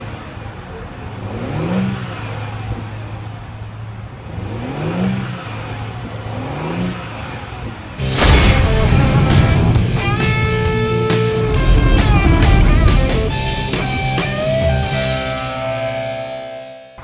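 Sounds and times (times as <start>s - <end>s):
car engine idling and revving: 0.0s - 15.7s
music: 8.0s - 17.0s.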